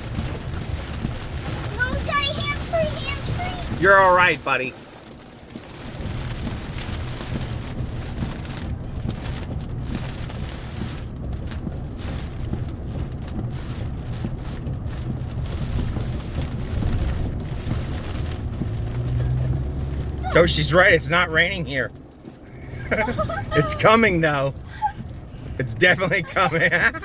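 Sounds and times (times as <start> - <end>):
rain: 0.0 - 27.0
road rumble inside car: 0.0 - 27.0
tyres hissing: 20.2 - 21.8, 22.4 - 27.0.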